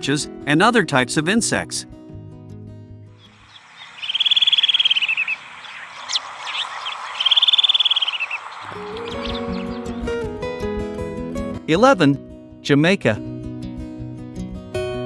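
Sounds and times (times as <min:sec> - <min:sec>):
bird chirps: 0:03.2 - 0:10.3
bird trilling: 0:03.2 - 0:10.3
outdoor background hiss: 0:03.2 - 0:11.6.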